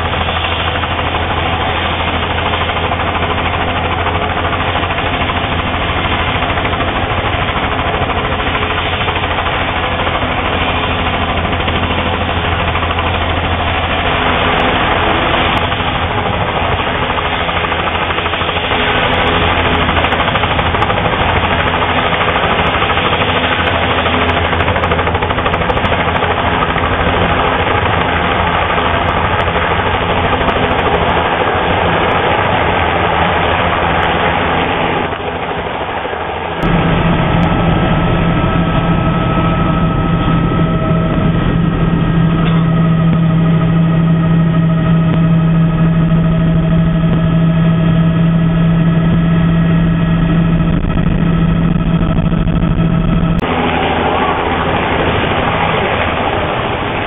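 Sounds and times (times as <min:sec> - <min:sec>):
engine roaring: 0:00.0 - 0:57.0
steady low hum: 0:36.6 - 0:57.0.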